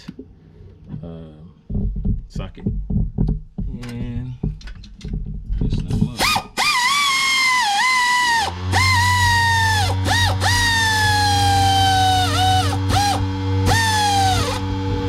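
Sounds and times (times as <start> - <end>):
impact gun motor whine: 6.2 - 15.0
steady low buzz: 8.5 - 15.0.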